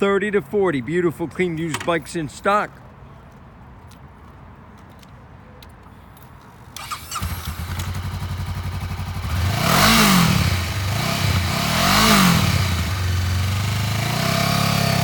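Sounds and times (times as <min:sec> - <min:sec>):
motorcycle electric starter cranking: 0:06.6 - 0:10.5
motorcycle engine idling: 0:06.8 - 0:15.0
motorcycle engine revving: 0:06.8 - 0:15.0.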